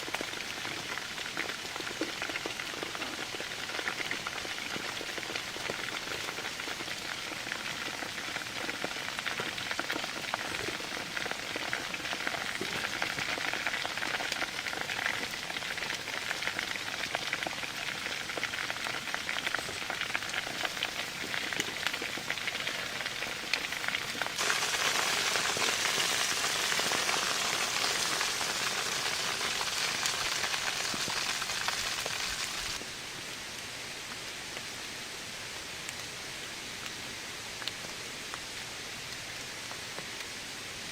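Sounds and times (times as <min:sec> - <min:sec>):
heavy rain falling: 0:17.5 - 0:32.8.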